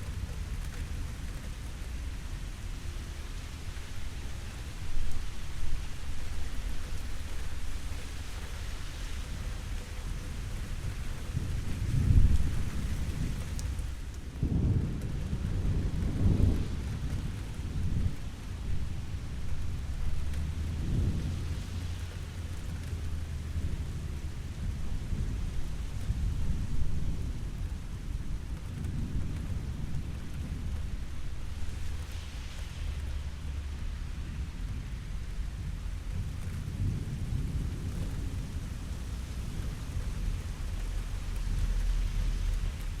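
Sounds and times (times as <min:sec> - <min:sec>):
steady rain hissing: 0:00.0 - 0:43.0
rolling thunder: 0:11.2 - 0:22.3, 0:23.1 - 0:43.0.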